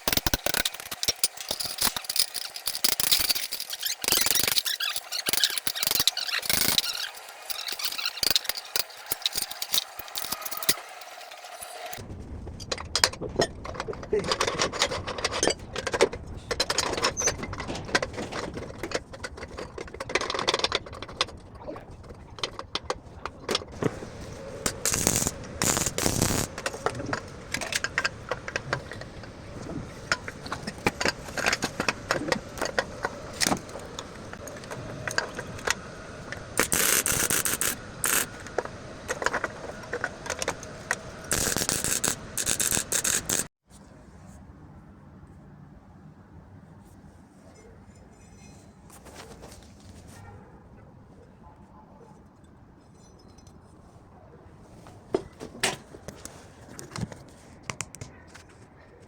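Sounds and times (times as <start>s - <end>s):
metal clicks knocks and scraping: 0.0s - 12.0s, 12.6s - 43.5s
harsh hissing bursts: 23.8s - 30.6s, 31.2s - 39.7s, 40.6s - 43.5s.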